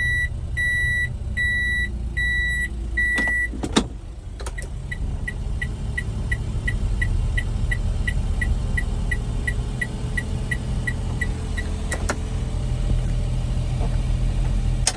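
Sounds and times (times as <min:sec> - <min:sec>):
engine idling: 0:00.0 - 0:14.9.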